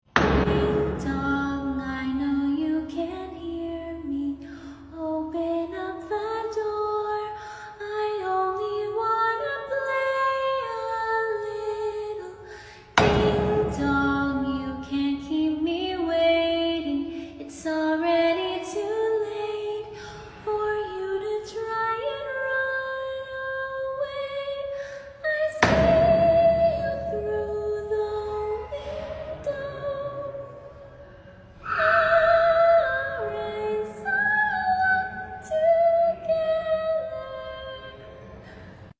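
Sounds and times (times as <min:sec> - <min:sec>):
deep boom: 0:00.0 - 0:03.4, 0:13.0 - 0:15.6, 0:25.6 - 0:35.3
woman singing slow melody: 0:00.4 - 0:30.8, 0:31.6 - 0:38.4.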